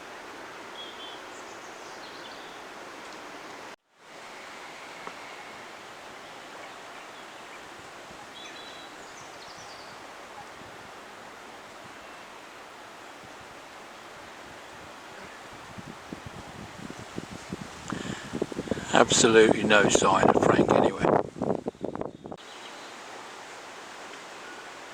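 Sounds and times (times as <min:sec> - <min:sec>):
steady outdoor hiss: 0:00.0 - 0:24.9
faint bird chirps: 0:06.6 - 0:10.6.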